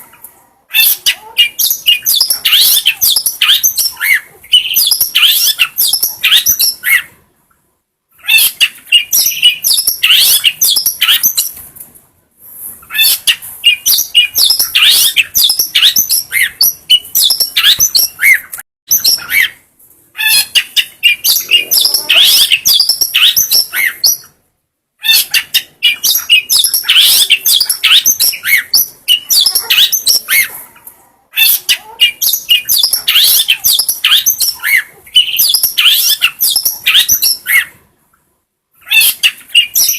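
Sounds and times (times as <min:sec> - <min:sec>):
shrike singing chirps and warbles: 0:00.0 - 0:07.2, 0:08.2 - 0:11.6, 0:12.8 - 0:24.4, 0:25.0 - 0:37.8, 0:38.8 - 0:39.9.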